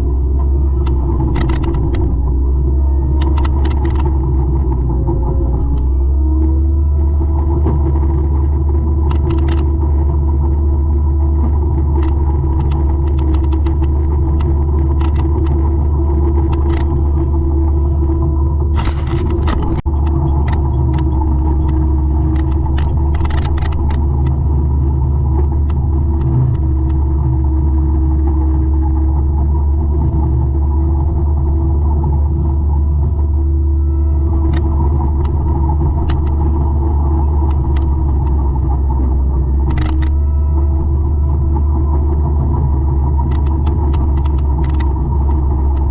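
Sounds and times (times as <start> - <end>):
mulcher engine drone: 0.0 - 45.9
sharp clicks and cracks: 0.4 - 2.4, 3.1 - 5.0, 7.6 - 10.6, 11.2 - 17.5, 18.6 - 30.2, 34.4 - 40.2, 41.1 - 45.9.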